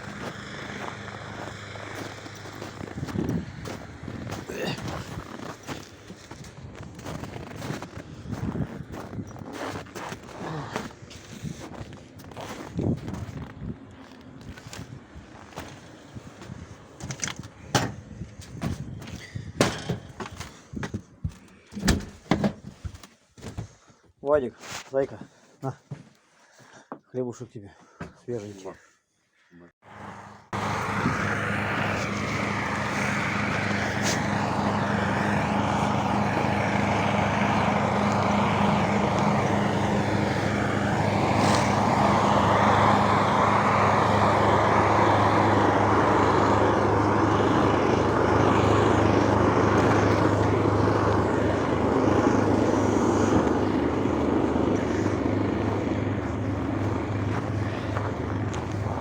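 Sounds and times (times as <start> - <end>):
vehicle engine running: 0.0 - 14.6, 29.8 - 59.0
broad rushing noise: 29.9 - 59.0.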